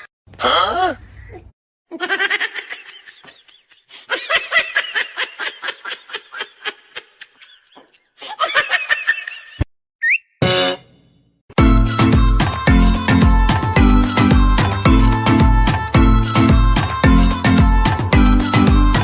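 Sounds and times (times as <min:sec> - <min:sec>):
person laughing: 0:01.9 - 0:09.6.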